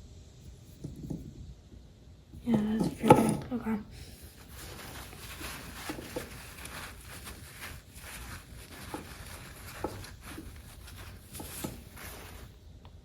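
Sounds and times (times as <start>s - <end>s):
rustling paper towels: 2.4s - 12.7s.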